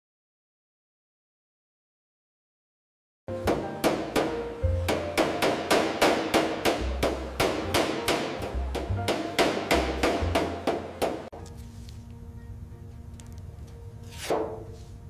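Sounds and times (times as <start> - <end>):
hammer striking metal: 3.3 - 11.4.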